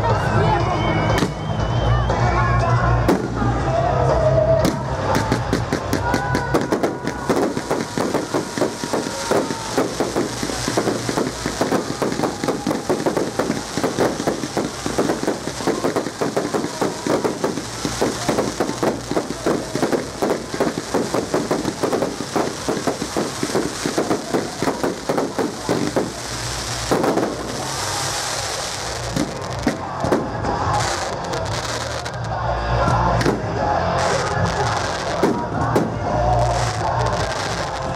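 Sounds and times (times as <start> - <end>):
fireworks bangs and crackling: 0.1 - 2.2, 2.8 - 37.9
fireworks hissing: 5.2 - 32.4, 33.3 - 37.9.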